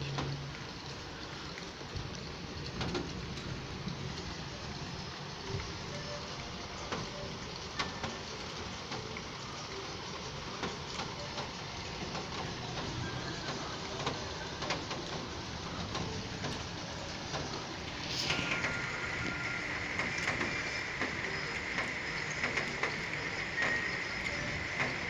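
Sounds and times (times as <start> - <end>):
steady rain falling: 0.0 - 25.0
rushing sound with high tone: 17.7 - 21.8.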